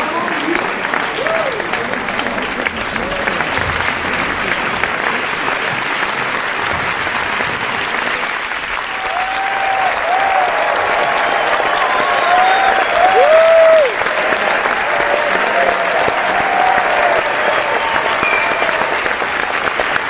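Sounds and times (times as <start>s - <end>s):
crowd applauding: 0.0s - 20.0s.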